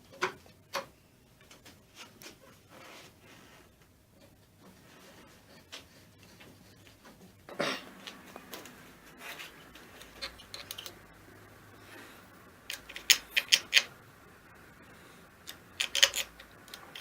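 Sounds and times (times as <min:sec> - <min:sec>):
metal parts scraping and rubbing: 0:08.3 - 0:11.1, 0:11.9 - 0:14.0, 0:15.4 - 0:17.0
sharp clicks: 0:12.7 - 0:14.0.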